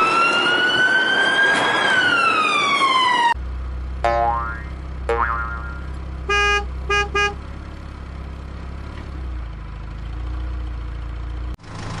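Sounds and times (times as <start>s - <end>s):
low engine hum: 3.3s - 12.0s
vehicle horn honking: 5.6s - 7.4s.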